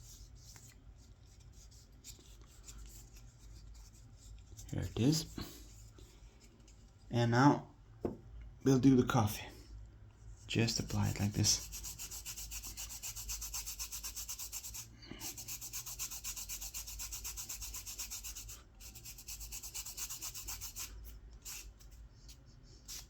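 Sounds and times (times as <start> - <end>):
scrubbing strokes on wooden spoon: 10.2 - 23.0.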